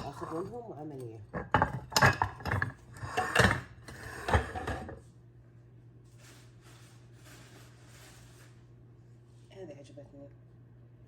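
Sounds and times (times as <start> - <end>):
plates and bowls clattering: 0.0 - 0.6, 1.3 - 5.0.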